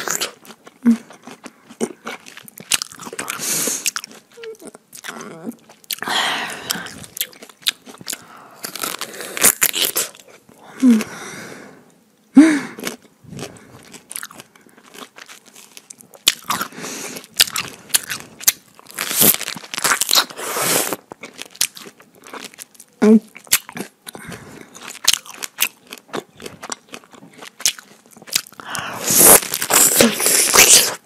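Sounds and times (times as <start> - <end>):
wet chewing and lip-smacking: 6.7 - 10.4, 12.8 - 20.2, 21.1 - 31.0.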